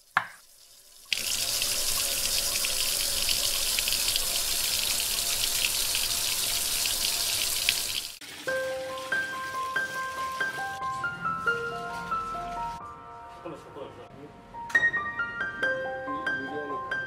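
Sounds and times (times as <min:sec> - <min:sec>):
hot oil sizzling in a pan: 0:00.0 - 0:08.6.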